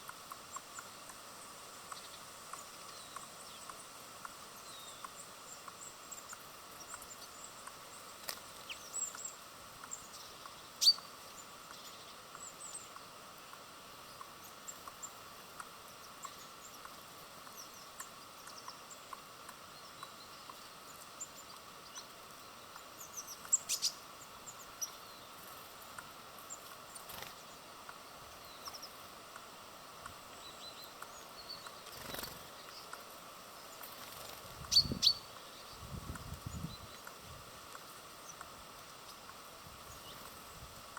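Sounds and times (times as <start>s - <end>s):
faint outdoor background hiss: 0.0s - 40.9s
small birds chirping: 0.0s - 40.9s.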